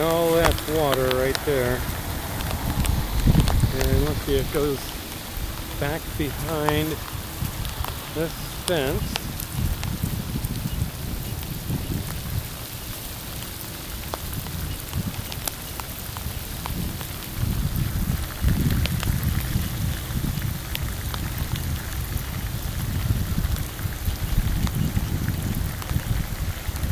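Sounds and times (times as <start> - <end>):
low rumble: 0.0 - 12.5
raindrops pattering: 0.0 - 26.9.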